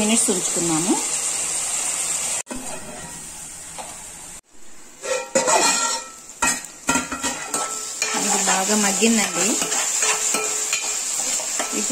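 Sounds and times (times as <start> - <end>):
vegetables sizzling in a pan: 0.0 - 11.9.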